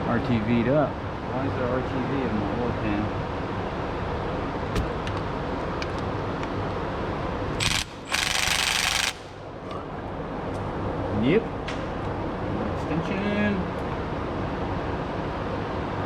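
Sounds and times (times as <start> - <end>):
steady shop hum: 0.0 - 16.0
pneumatic ratchet bursts: 7.6 - 9.4.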